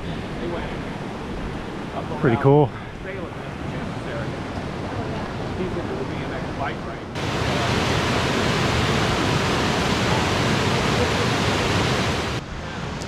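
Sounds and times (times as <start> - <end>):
creek water rushing: 7.2 - 13.0.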